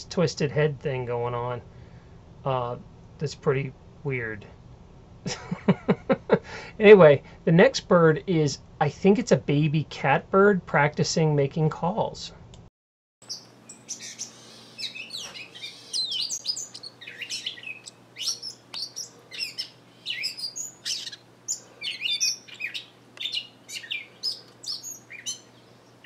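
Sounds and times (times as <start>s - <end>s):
catbird chirping and whistling: 13.3s - 25.8s.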